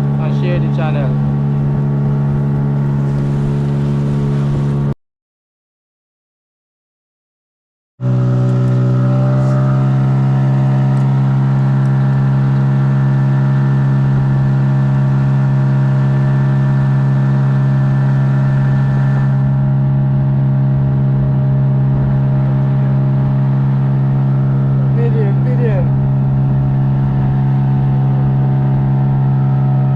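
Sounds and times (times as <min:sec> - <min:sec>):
boat motor droning: 0:00.0 - 0:05.0, 0:08.0 - 0:29.9.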